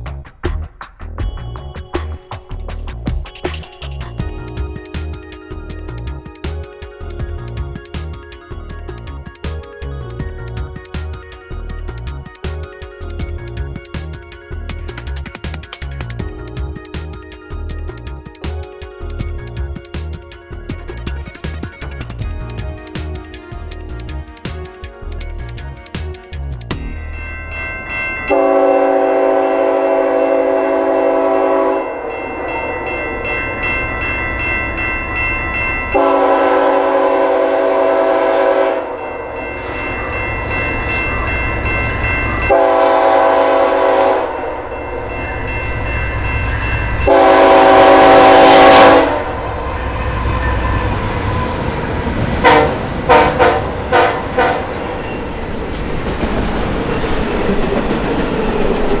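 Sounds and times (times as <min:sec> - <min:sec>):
wheels clacking over rail joints: 0:00.0 - 0:27.3, 0:44.6 - 0:59.0
train rumbling past: 0:01.0 - 0:59.0
locomotive air horn blasts: 0:28.3 - 0:31.9, 0:36.0 - 0:38.9, 0:42.5 - 0:44.6, 0:47.1 - 0:51.5, 0:52.4 - 0:54.8.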